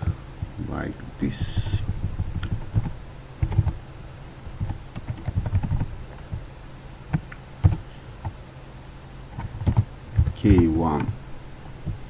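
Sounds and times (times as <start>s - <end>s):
typing on computer keyboard: 1.4s - 3.8s, 4.6s - 5.9s, 7.1s - 7.8s, 9.4s - 11.2s.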